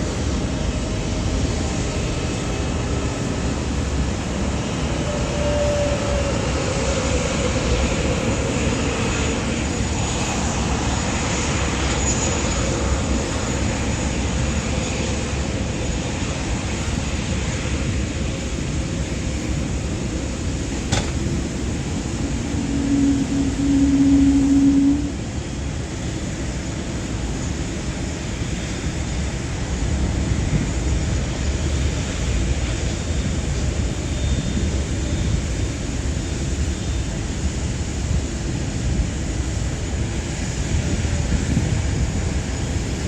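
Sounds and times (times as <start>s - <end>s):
jet engines rushing rumble: 0.0s - 43.0s
steady low hum: 18.2s - 26.4s.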